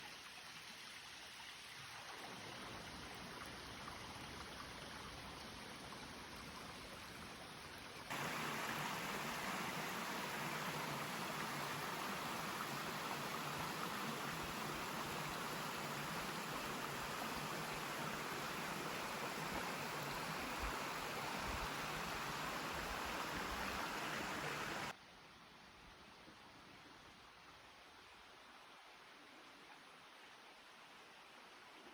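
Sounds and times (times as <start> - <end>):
water rushing over rocks: 8.1 - 24.9.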